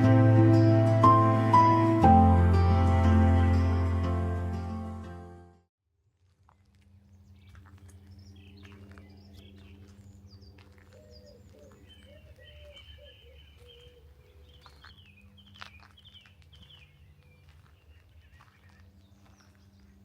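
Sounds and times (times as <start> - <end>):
small birds chirping: 6.5 - 20.0.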